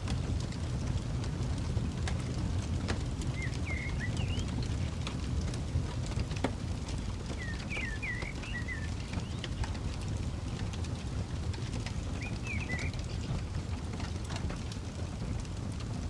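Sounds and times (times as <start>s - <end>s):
campfire crackling and popping: 0.0s - 16.0s
bird chirping: 3.4s - 4.6s, 7.3s - 9.6s, 12.2s - 13.2s.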